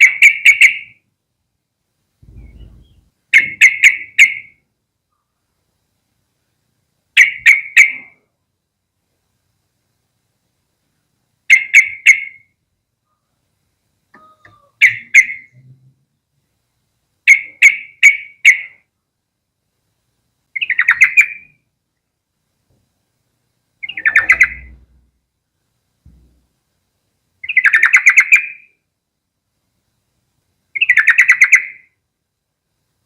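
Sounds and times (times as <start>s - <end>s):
bird chirping calls: 2.2s - 4.6s, 7.2s - 8.2s, 11.5s - 12.5s, 14.1s - 15.7s, 17.3s - 18.8s, 20.5s - 21.6s, 23.8s - 25.1s, 27.4s - 28.8s, 30.8s - 31.9s.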